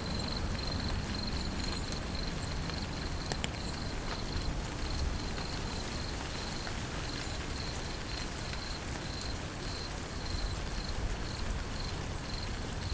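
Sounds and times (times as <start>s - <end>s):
steady rain falling: 0.0s - 12.9s.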